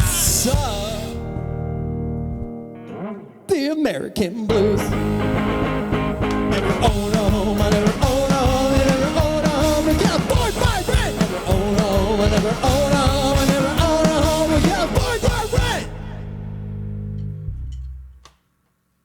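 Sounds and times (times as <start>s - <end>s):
punk band playing: 0.0s - 1.3s, 4.5s - 16.2s
wordless singing voices: 0.0s - 1.3s, 3.5s - 16.6s.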